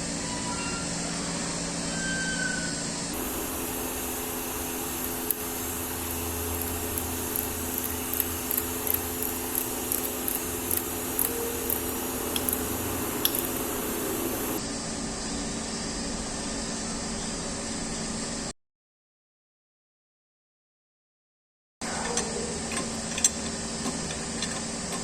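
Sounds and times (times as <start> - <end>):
motor humming: 3.1 - 14.6
irregular sharp clicks: 3.2 - 14.6.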